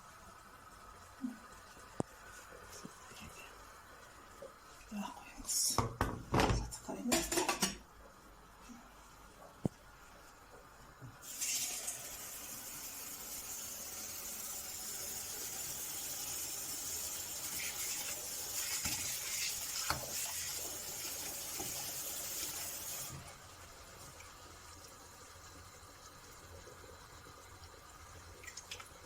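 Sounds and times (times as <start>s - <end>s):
water running from a tap: 11.2s - 29.0s.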